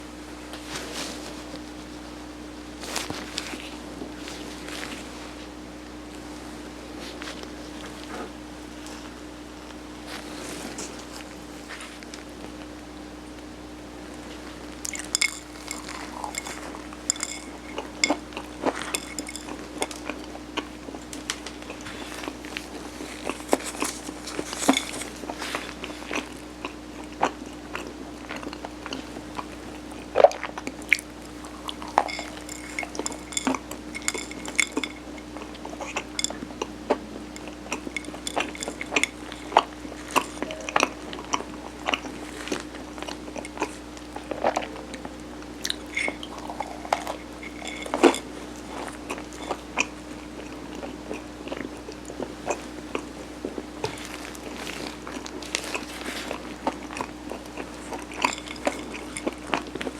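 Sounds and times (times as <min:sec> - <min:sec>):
faint steady hum: 0:00.0 - 0:59.9
chewing: 0:14.2 - 0:59.9
utensils clicking and clinking: 0:14.8 - 0:20.2, 0:31.6 - 0:36.4.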